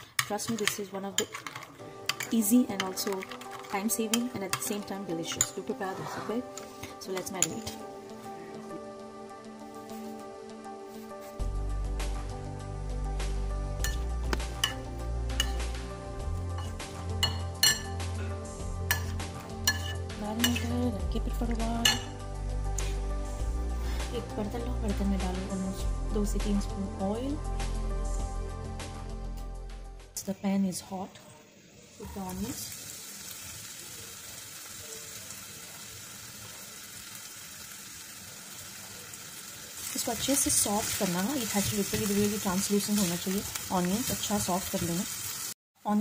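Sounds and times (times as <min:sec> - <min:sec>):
background music: 0:00.0 - 0:33.5, 0:39.8 - 0:45.0
metal spoon clinking on ceramic bowl: 0:00.2 - 0:05.6, 0:16.6 - 0:18.0, 0:18.9 - 0:20.6, 0:21.8 - 0:22.1
onions sizzling in hot oil: 0:02.0 - 0:08.0, 0:18.9 - 0:22.2, 0:31.5 - 0:46.0.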